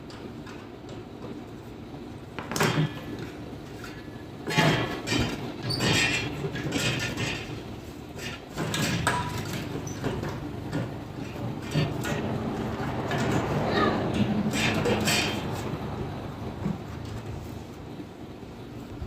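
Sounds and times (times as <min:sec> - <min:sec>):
tools and metal parts clattering: 0:02.4 - 0:07.6, 0:08.2 - 0:13.5, 0:14.1 - 0:15.7.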